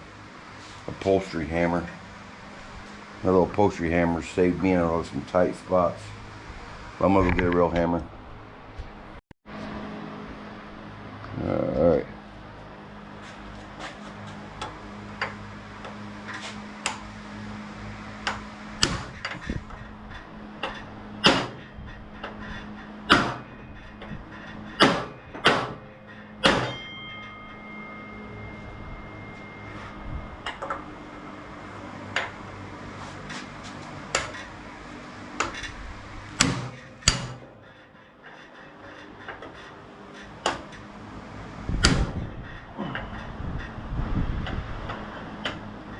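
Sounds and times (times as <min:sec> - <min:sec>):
hammer striking metal: 0:18.2 - 0:19.4, 0:20.6 - 0:21.7, 0:23.0 - 0:32.4, 0:35.4 - 0:37.6.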